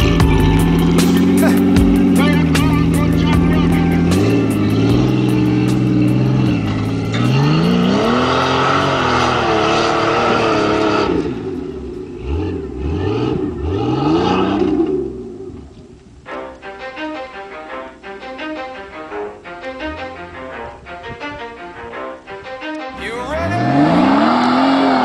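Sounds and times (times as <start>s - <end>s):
engine revving hard: 0.0s - 11.5s, 12.2s - 15.3s, 23.4s - 25.0s.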